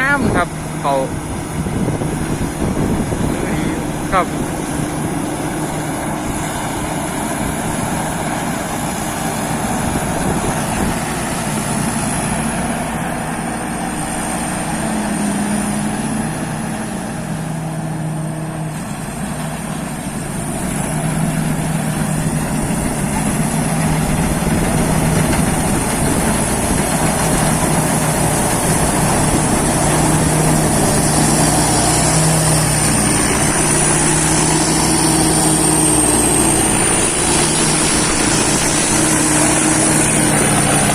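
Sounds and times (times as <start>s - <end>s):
combine harvester engine hum: 0.0s - 40.9s.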